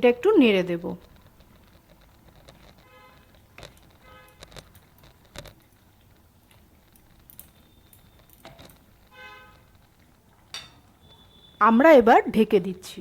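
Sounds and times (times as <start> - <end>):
spoon clinking in pot: 10.5 - 10.9.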